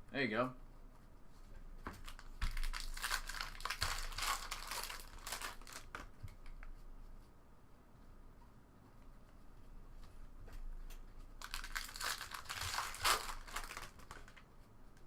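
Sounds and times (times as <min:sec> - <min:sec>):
soft handling noises: 0:00.3 - 0:15.0
wrapper crinkling and tearing: 0:02.0 - 0:06.1, 0:11.4 - 0:14.4.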